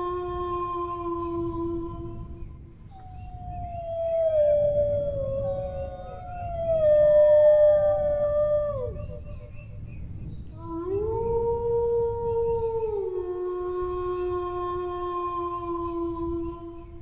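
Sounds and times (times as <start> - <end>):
dog howling: 2.9 - 9.5, 10.6 - 17.0.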